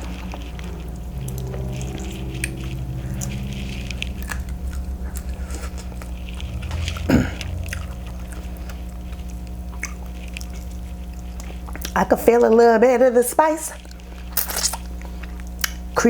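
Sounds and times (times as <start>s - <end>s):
low hum: 0.0s - 11.9s
person chewing food: 4.2s - 12.0s, 13.8s - 16.0s.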